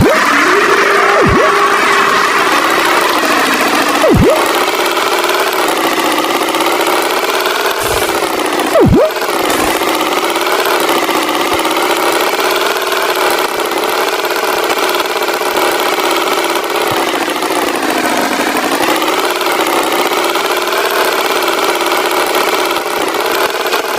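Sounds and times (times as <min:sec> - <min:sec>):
engine running: 0:00.0 - 0:23.9
swooping whistle-like glide: 0:04.0 - 0:04.7, 0:07.8 - 0:09.9.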